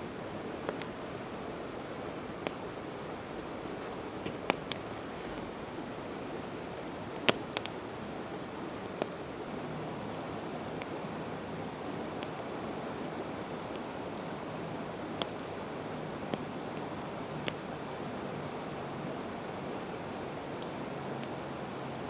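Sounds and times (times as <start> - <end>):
river water rushing: 9.3 - 22.0
cricket chirping: 13.5 - 21.2
campfire crackling and popping: 13.6 - 21.4.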